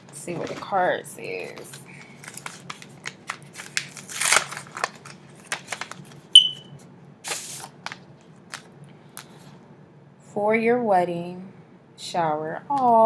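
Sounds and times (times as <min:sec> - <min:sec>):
paper rustling and clicks: 0:01.7 - 0:06.2
paper ripping: 0:02.2 - 0:06.2, 0:07.3 - 0:07.8.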